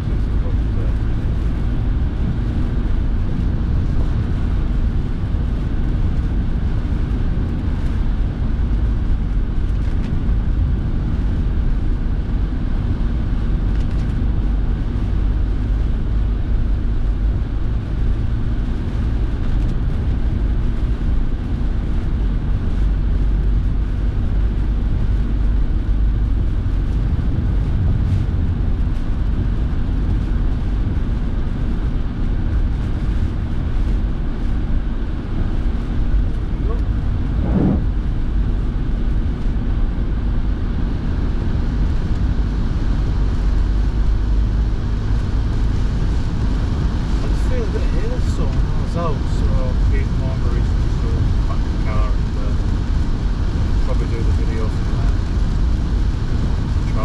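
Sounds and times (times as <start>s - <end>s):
car engine and road rumble: 0.0s - 57.0s
heater fan blowing: 22.2s - 57.0s.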